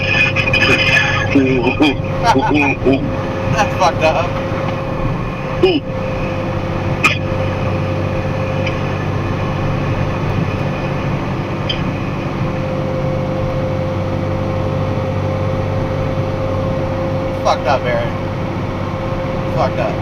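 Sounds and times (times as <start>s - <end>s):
faint whine: 0.0s - 20.0s
truck engine and road drone: 0.0s - 20.0s.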